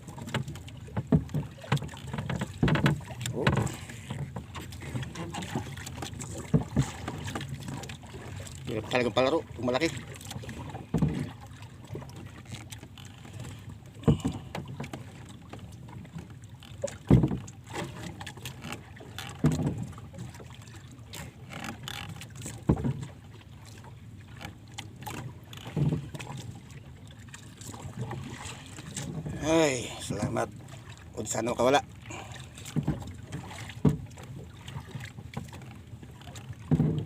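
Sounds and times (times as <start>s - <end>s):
water sloshing around boat: 0.0s - 37.0s
dull knock or splash: 0.2s - 3.9s, 4.9s - 7.4s, 10.6s - 11.4s, 14.0s - 15.0s, 16.9s - 18.0s, 19.3s - 20.0s, 22.5s - 23.1s, 32.6s - 34.2s, 36.6s - 37.0s.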